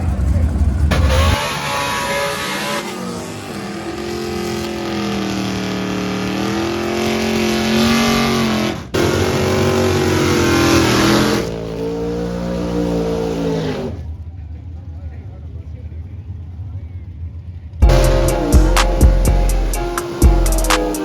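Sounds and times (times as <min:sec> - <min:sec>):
car engine accelerating: 0:00.0 - 0:14.8, 0:17.8 - 0:21.0
road and wind noise: 0:00.0 - 0:15.0.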